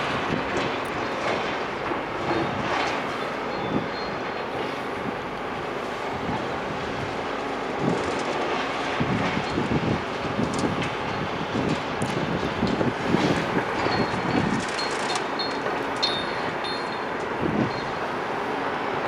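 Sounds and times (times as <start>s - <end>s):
heavy demolition machinery running: 0.0s - 19.0s
debris crunching and clattering: 12.1s - 17.1s.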